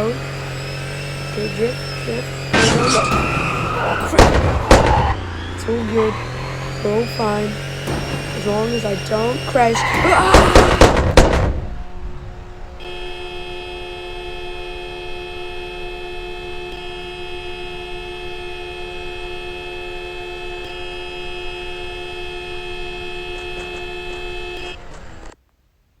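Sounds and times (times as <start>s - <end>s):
vehicle horn chord: 0.0s - 11.0s, 11.7s - 25.4s.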